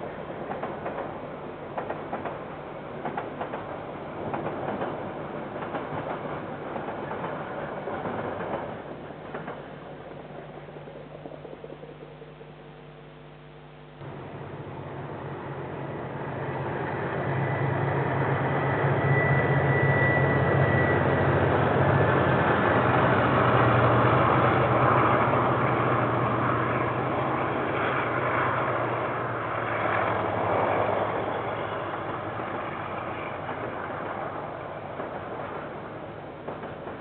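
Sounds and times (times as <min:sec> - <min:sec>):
high-pitched squeal: 0:14.0 - 0:34.4
locomotive engine: 0:14.0 - 0:37.0.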